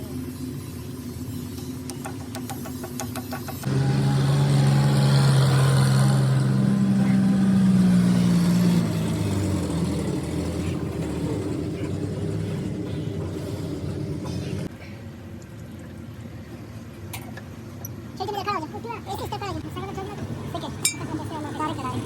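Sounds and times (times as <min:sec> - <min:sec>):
engine running: 0:00.0 - 0:14.7.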